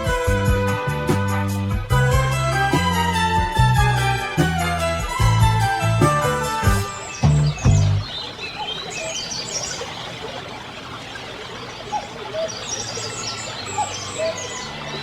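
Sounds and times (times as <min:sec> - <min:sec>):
music: 0:00.0 - 0:08.0
birds chirping and calling: 0:05.7 - 0:15.0.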